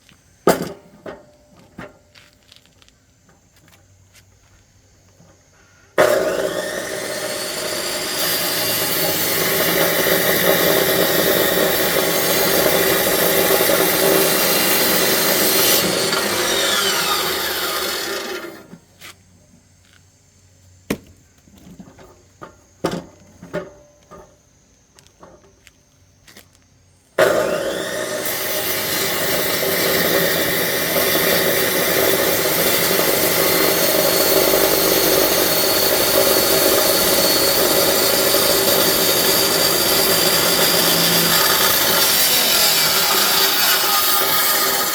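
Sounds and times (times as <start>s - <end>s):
electric saw cutting logs: 6.0s - 18.8s, 27.2s - 44.9s.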